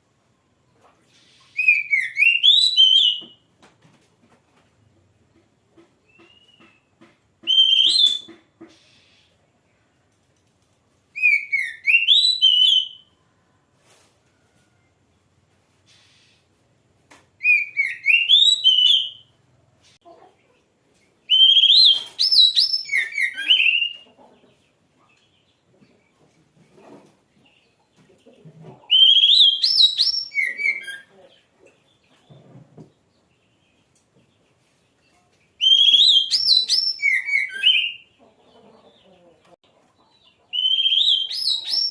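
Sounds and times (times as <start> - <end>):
bird singing whistled phrases: 1.5 - 3.3, 7.4 - 8.3, 11.2 - 13.1, 17.4 - 19.3, 21.3 - 24.0, 28.9 - 31.1, 35.6 - 38.1, 40.6 - 41.9.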